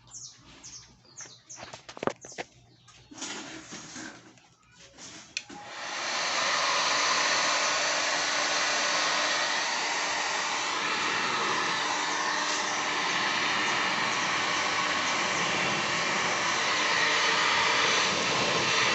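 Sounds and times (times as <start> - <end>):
hair dryer blowing: 5.4 - 18.9.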